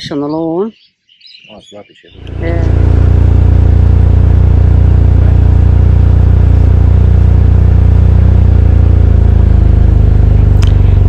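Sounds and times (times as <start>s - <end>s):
motorcycle engine running: 2.2s - 11.0s.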